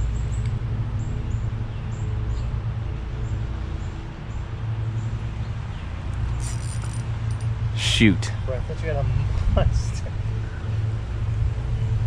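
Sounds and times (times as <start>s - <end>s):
small bird chirping: 6.2s - 7.5s.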